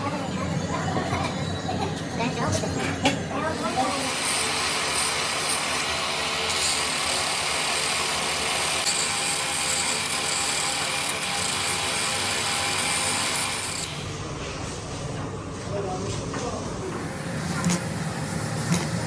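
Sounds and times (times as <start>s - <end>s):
harsh metalworking noise: 0.0s - 15.2s, 16.3s - 19.0s.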